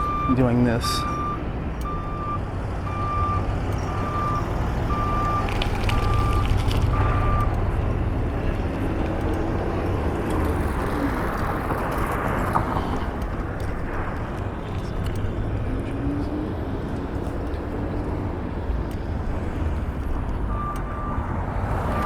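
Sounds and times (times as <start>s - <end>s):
backup alarm beeping: 0.0s - 7.5s, 20.5s - 21.3s
low rumble of vehicle engines: 0.0s - 22.0s.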